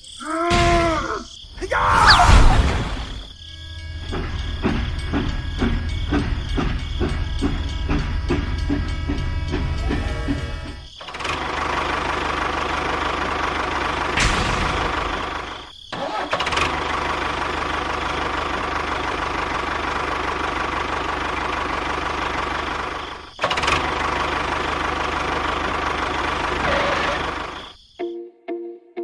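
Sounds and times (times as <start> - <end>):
engine running steadily: 3.6 - 27.8.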